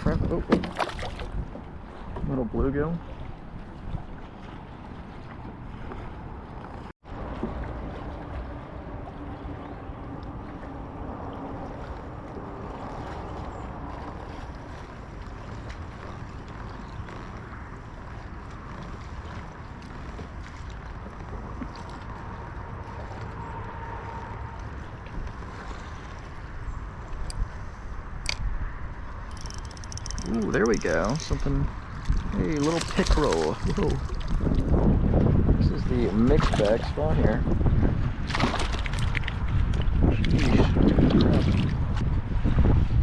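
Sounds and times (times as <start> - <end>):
strong wind on microphone: 26.4 - 43.0.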